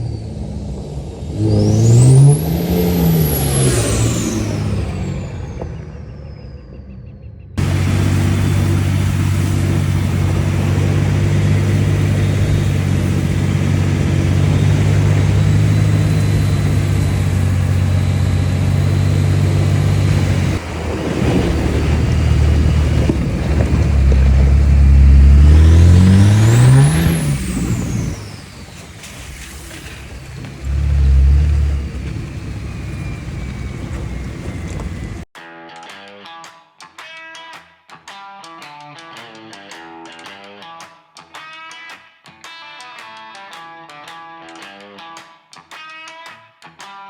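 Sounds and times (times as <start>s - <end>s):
diesel engine revving: 0.0s - 35.3s.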